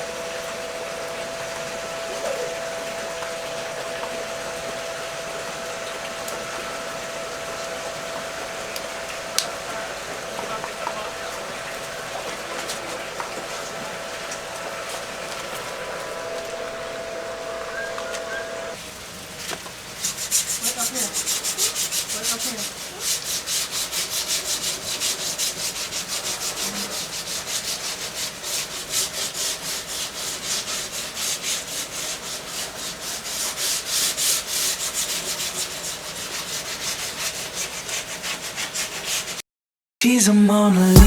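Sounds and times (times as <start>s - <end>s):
fast rubbing strokes: 20.0s - 39.4s.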